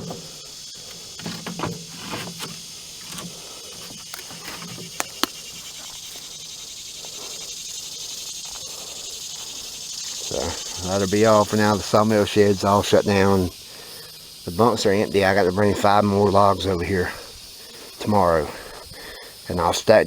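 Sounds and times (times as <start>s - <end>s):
high-pitched outdoor hiss: 0.0s - 20.0s
sharp clicks: 2.4s - 6.3s.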